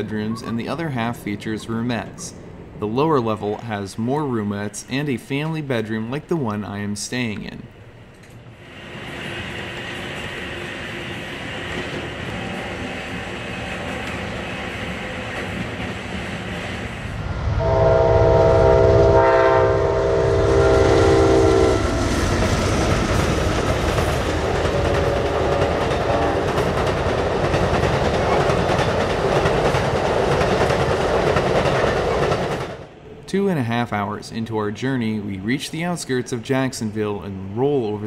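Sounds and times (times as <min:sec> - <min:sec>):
train cars rumbling: 0:07.4 - 0:34.7
locomotive air horn: 0:17.6 - 0:21.9
wheels clacking over rail joints: 0:22.8 - 0:32.8.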